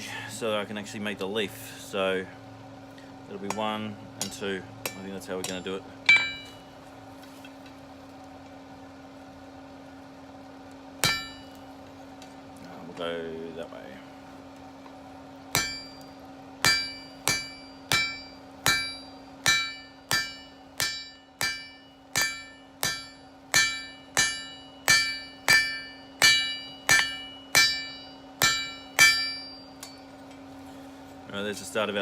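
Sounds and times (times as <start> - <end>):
hammer striking steel on anvil: 3.4 - 6.7, 11.0 - 11.7, 15.5 - 30.2.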